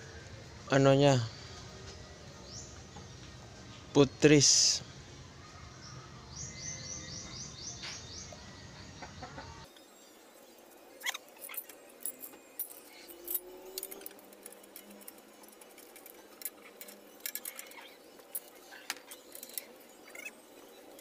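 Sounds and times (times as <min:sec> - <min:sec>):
faint metallic clicks and clinks: 0:10.9 - 0:21.0
bird trilling: 0:20.0 - 0:20.8.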